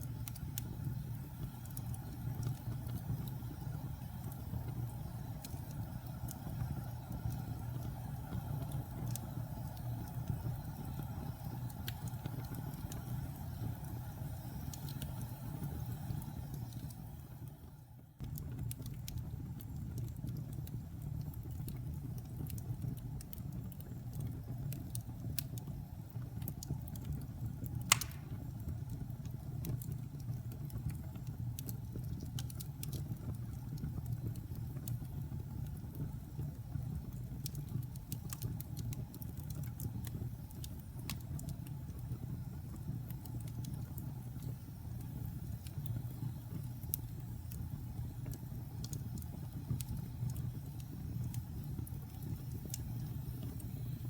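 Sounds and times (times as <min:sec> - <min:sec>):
fire popping: 0:00.0 - 0:54.0
wood fire crackling: 0:00.0 - 0:54.0.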